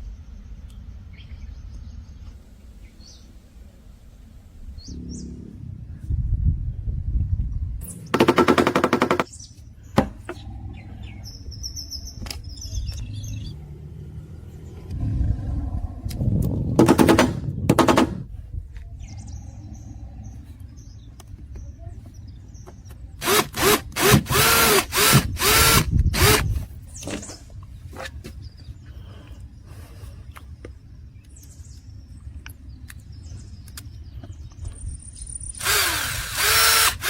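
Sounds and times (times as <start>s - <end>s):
low rumble: 3.7s - 8.2s, 10.2s - 22.5s.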